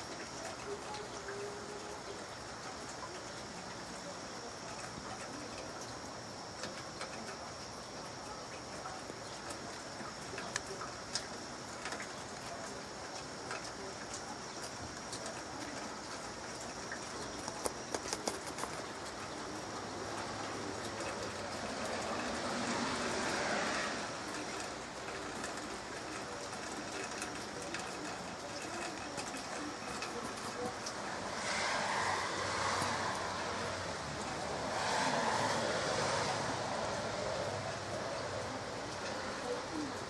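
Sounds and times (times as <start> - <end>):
light rain pattering: 0.0 - 40.0
water drips: 0.0 - 40.0
broad rushing sound: 31.0 - 37.5.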